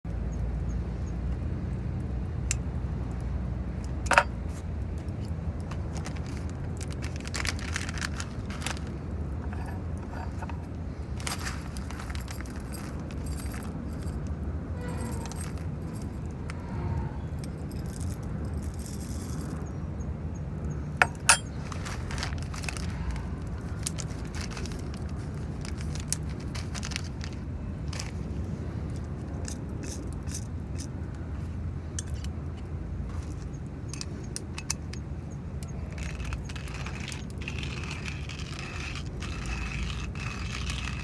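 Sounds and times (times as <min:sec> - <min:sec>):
steady low rumble: 0:01.7 - 0:41.0
metal gear clinking and rattling: 0:03.9 - 0:04.4, 0:05.7 - 0:16.7, 0:17.4 - 0:19.8, 0:21.0 - 0:31.0, 0:35.6 - 0:41.0
sharp ringing metallic clink: 0:21.0 - 0:21.6.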